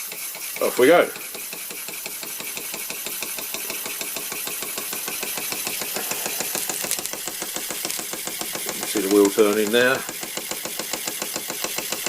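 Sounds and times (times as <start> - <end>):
steam hiss: 0.0 - 6.7
toy steam engine ticking: 0.0 - 12.0.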